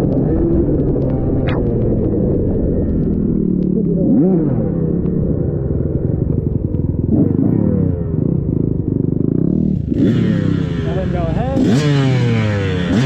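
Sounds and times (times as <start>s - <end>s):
dirt bike engine revving: 6.0s - 13.0s.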